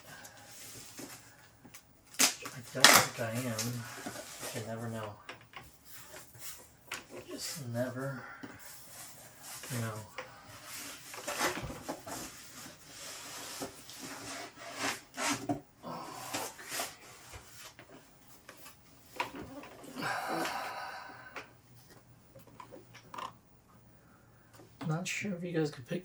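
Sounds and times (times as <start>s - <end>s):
cardboard rustling: 0.0s - 15.6s, 16.2s - 20.0s
cardboard rubbing and scraping: 2.2s - 5.1s, 8.6s - 15.6s, 16.2s - 18.8s.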